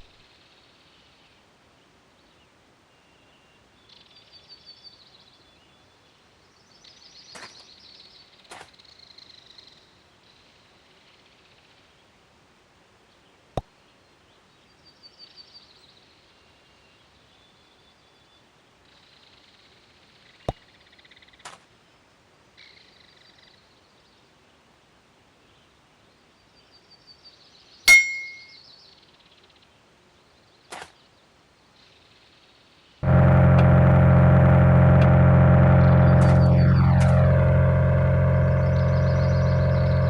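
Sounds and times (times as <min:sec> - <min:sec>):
sound system with heavy bass: 0:33.0 - 0:40.0.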